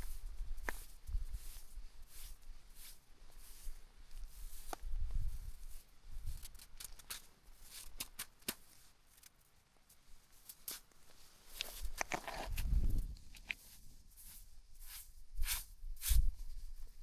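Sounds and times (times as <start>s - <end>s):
footsteps on rocky ground: 0.0s - 1.0s, 10.6s - 13.7s
wind buffeting microphone: 12.5s - 13.2s.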